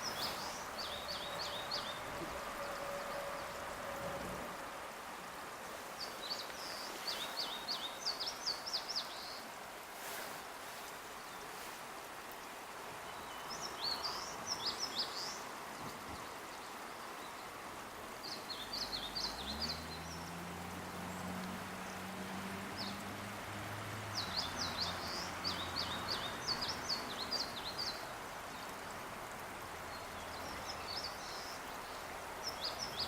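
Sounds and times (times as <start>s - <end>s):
songbird chirping: 0.0s - 3.8s, 5.1s - 23.1s, 24.1s - 33.0s
outdoor hiss: 0.0s - 33.0s.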